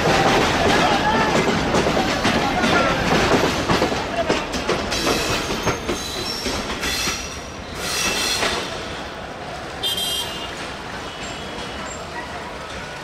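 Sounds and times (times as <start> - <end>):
train wheels clattering: 0.0 - 9.0.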